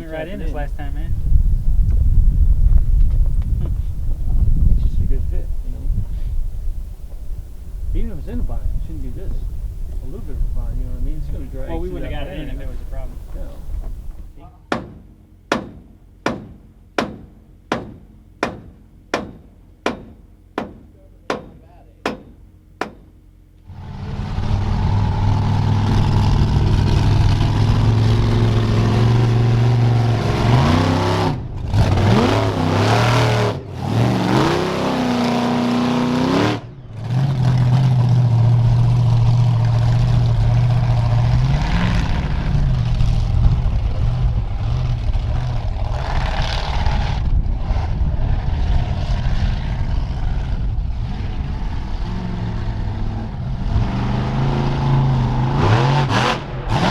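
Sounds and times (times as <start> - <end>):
sharp knock: 14.7 - 23.1
monster truck engine revving: 23.6 - 56.9.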